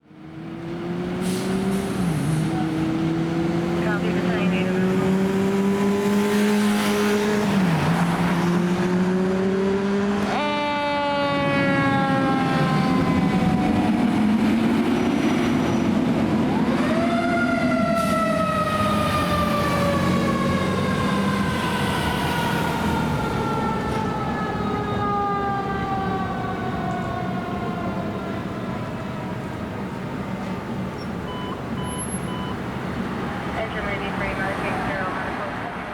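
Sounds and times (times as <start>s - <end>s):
fire engine drone: 0.0s - 35.9s
fire engine siren winding: 16.6s - 28.0s.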